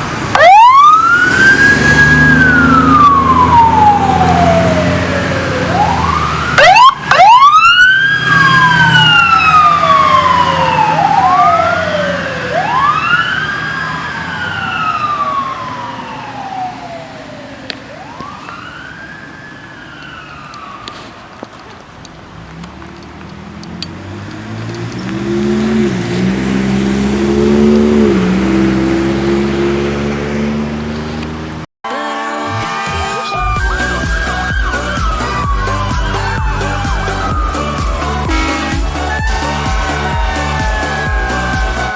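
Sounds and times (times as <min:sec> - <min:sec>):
heavy engine revving: 0:00.0 - 0:06.6, 0:23.3 - 0:31.7, 0:32.4 - 0:41.9
fire siren wailing: 0:00.1 - 0:21.4, 0:25.2 - 0:30.8, 0:31.9 - 0:41.9.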